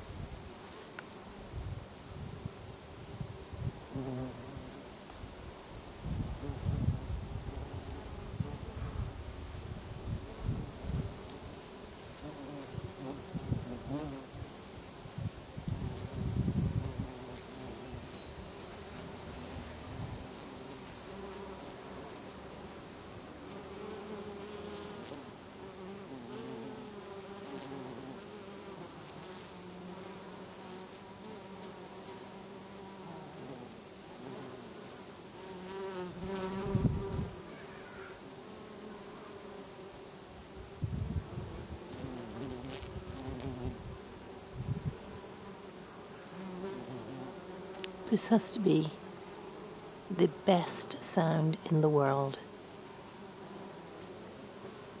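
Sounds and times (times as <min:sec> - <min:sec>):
bees buzzing: 0:15.7 - 0:55.0.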